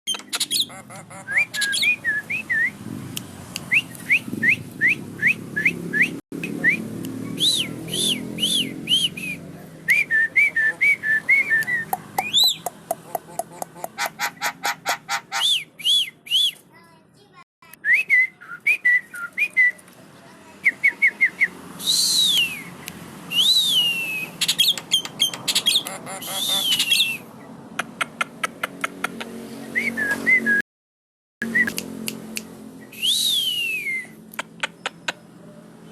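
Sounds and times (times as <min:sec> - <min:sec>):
bird whistling song: 0:00.1 - 0:02.8, 0:03.7 - 0:06.8, 0:07.4 - 0:12.7, 0:15.3 - 0:16.6, 0:17.8 - 0:19.8, 0:20.6 - 0:27.3, 0:31.4 - 0:31.9, 0:32.8 - 0:35.2.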